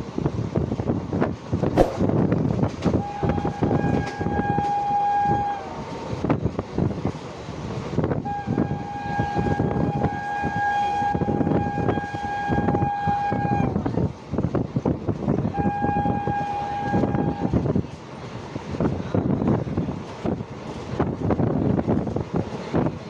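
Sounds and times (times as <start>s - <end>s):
train rumbling on rails: 0.0s - 23.0s
train horn blasts: 1.8s - 6.0s, 8.1s - 13.9s, 15.4s - 17.6s.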